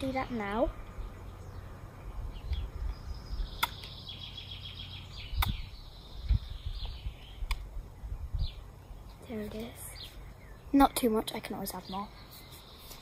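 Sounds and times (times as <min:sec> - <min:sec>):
steady low rumble: 0:00.0 - 0:10.8
small bird chirping: 0:00.0 - 0:13.0
sharp clicks: 0:03.6 - 0:04.0, 0:05.4 - 0:05.6.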